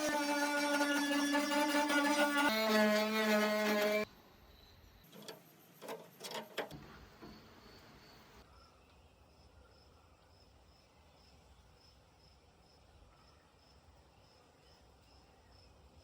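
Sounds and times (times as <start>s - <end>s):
cricket chirping: 4.4s - 16.0s.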